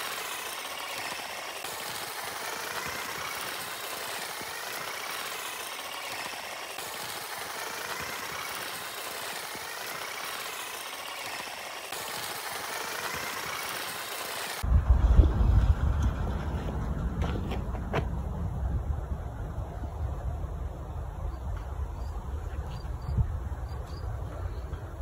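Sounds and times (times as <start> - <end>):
small motor running: 0.0 - 14.6.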